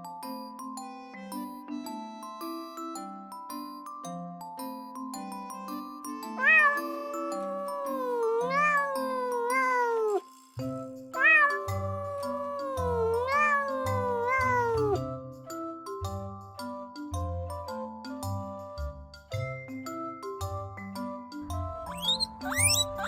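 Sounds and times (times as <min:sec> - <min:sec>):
light background music: 0:00.0 - 0:23.0
cat meowing: 0:06.3 - 0:10.2, 0:11.2 - 0:15.0, 0:21.9 - 0:23.0.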